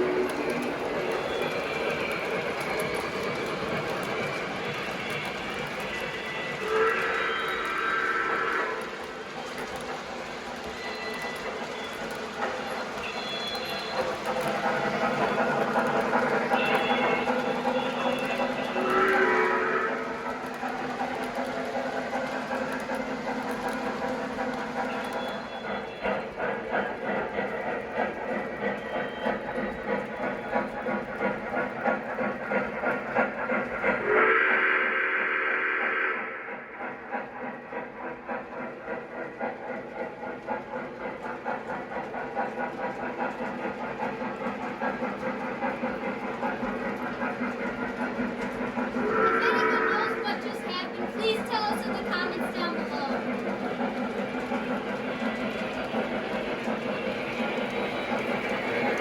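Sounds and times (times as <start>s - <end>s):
model train clattering: 0.0s - 34.0s, 36.8s - 59.0s
train horn blast: 16.5s - 20.2s, 34.0s - 36.4s.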